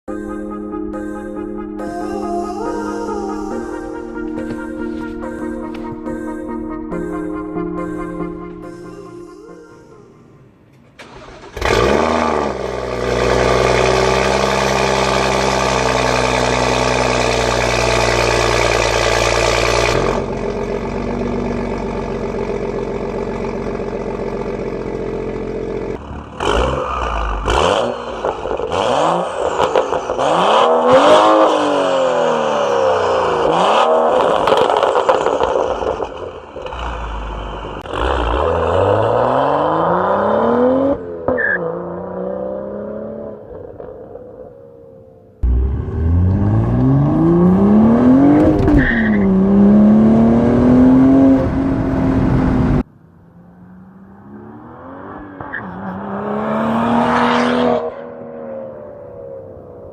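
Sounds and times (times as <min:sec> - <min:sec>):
car engine starting and idling: 0:00.1 - 0:59.9
engine revving in blips: 0:11.0 - 0:20.5, 0:25.9 - 0:44.0, 0:45.4 - 0:52.8, 0:53.6 - 0:58.3.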